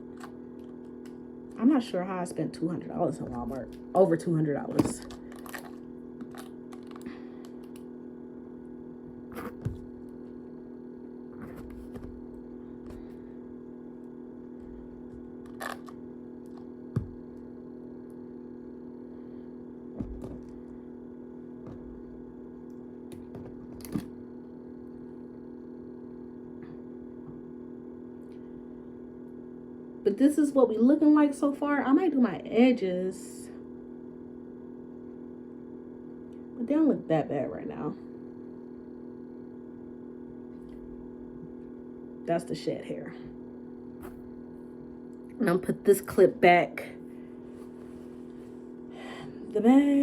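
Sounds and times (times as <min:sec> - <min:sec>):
steady hum: 0:00.0 - 0:50.0.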